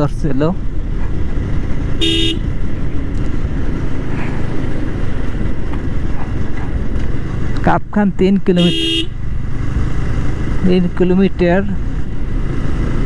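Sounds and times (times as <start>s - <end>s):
motorcycle engine rumble: 0.0s - 13.0s
horn beep: 2.0s - 2.4s.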